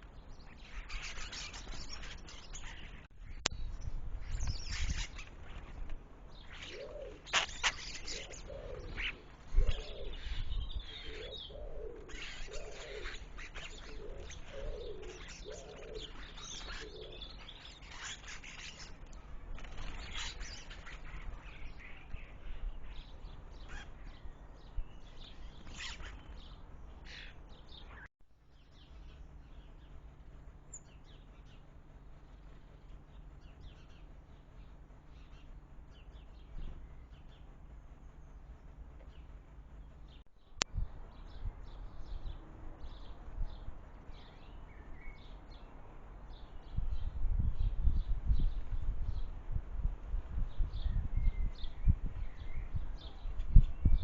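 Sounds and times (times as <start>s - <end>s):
small birds chirping: 0.0s - 49.4s, 50.3s - 54.0s
dove cooing: 6.5s - 17.4s.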